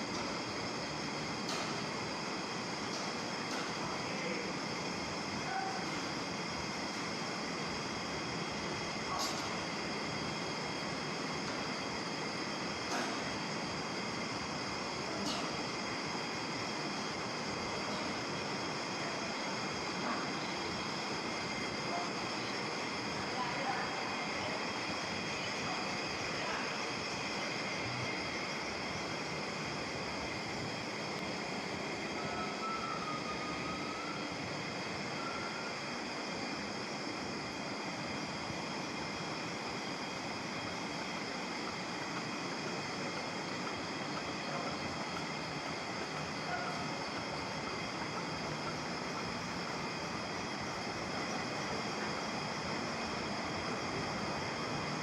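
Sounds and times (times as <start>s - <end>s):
machine high hum: 0.0s - 55.0s
faint thin whine: 30.6s - 36.5s.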